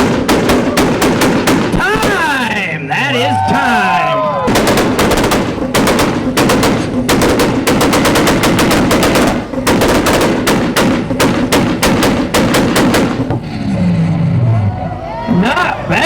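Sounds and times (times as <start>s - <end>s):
exhaust banging and crackling: 0.0s - 2.6s, 4.4s - 14.2s
car engine buzzing: 4.5s - 14.7s.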